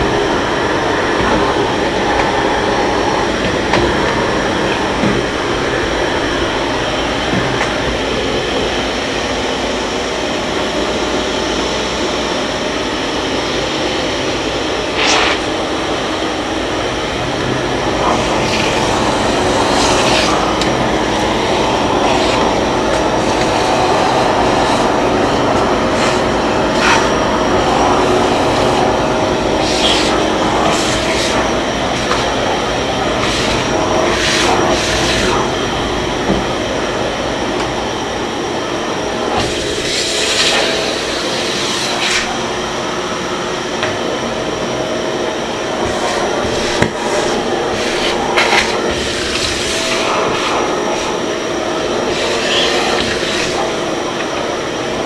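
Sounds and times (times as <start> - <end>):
vacuum cleaner running: 0.0 - 55.0
suction hissing: 17.8 - 32.4, 52.0 - 54.7.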